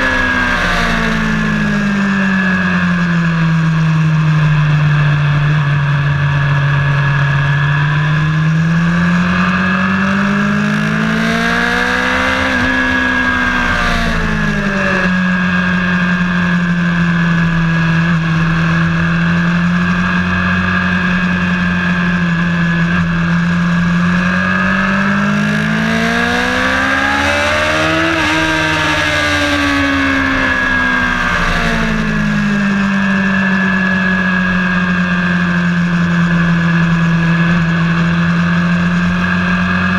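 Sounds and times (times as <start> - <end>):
race car engine droning: 0.0 - 39.9.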